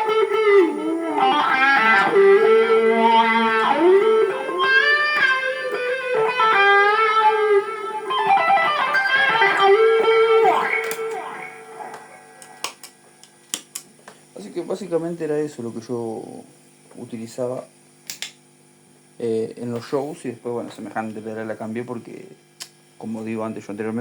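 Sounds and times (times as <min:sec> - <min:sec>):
distorted electric guitar with wah: 0:00.0 - 0:12.9.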